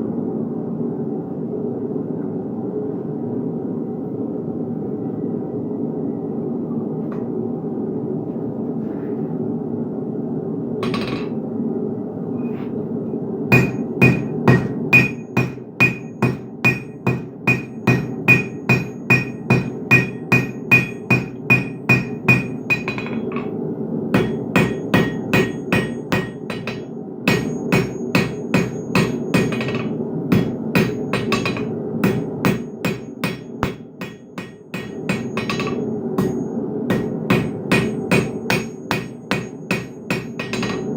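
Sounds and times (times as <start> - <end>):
steady hum: 0.0 - 40.9
hammer striking metal on anvil: 10.8 - 11.4, 13.5 - 23.5, 24.2 - 40.9.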